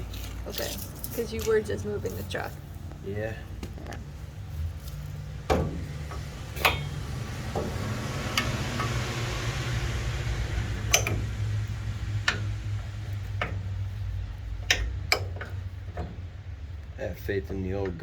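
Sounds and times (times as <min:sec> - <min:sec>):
hand tools clicking on metal: 0:06.0 - 0:07.1, 0:08.3 - 0:09.2, 0:10.8 - 0:13.9, 0:14.6 - 0:16.2.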